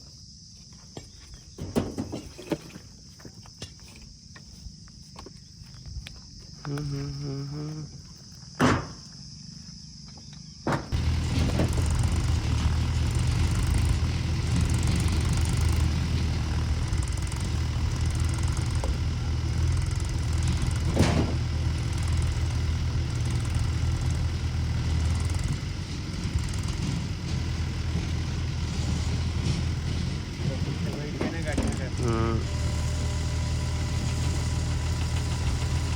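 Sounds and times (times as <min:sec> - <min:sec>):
clunk: 0:00.9 - 0:04.1, 0:08.6 - 0:09.0, 0:10.6 - 0:22.2, 0:25.1 - 0:32.1
tractor diesel engine running: 0:10.9 - 0:35.9.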